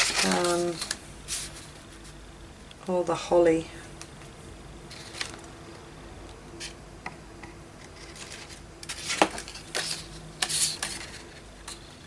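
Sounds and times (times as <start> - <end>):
paper rustling and tapping: 0.0 - 1.9, 4.9 - 5.5, 7.8 - 11.9.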